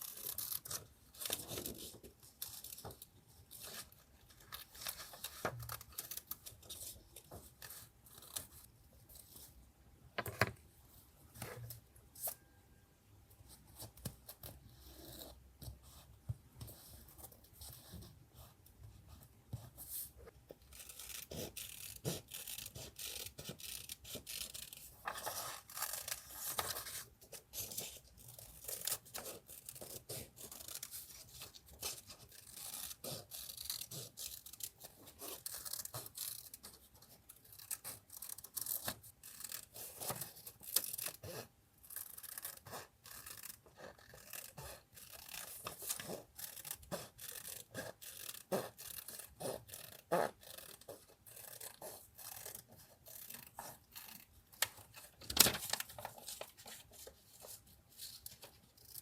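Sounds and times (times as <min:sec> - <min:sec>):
paper rustling: 0:54.6 - 0:58.7.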